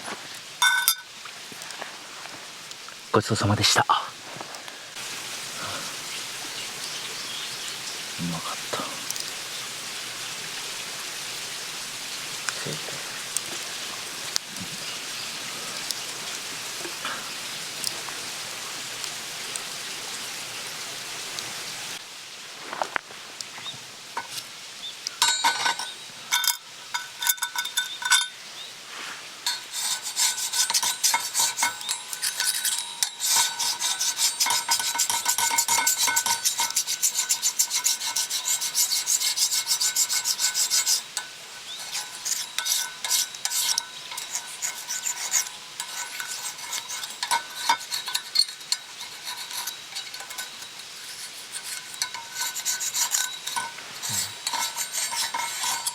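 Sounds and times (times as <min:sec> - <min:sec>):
steady hiss: 0:00.0 - 0:55.9
metal spatula scraping griddle: 0:25.2 - 0:28.3, 0:29.0 - 0:55.9.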